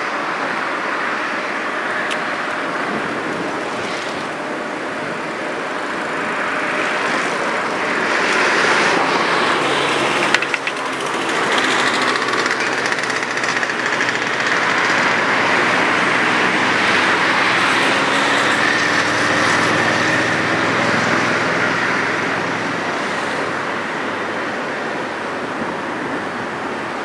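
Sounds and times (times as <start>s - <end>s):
vehicle engine running: 5.0s - 23.0s.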